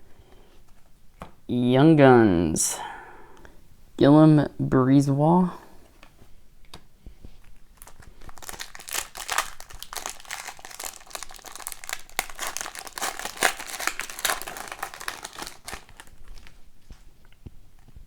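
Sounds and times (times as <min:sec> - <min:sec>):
foil wrappers crinkling: 0:07.5 - 0:16.7.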